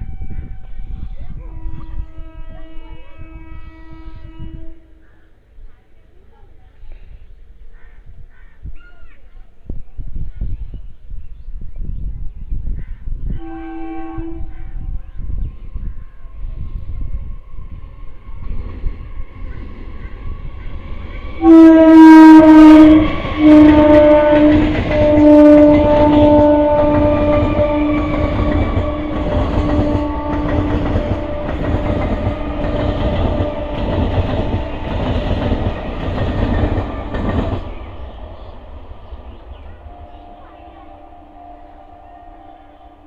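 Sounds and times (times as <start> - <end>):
train horn blasts: 0.0 - 5.1, 13.3 - 15.4, 21.4 - 35.8, 39.6 - 43.0
train wheels clattering over rail joints: 23.0 - 38.5.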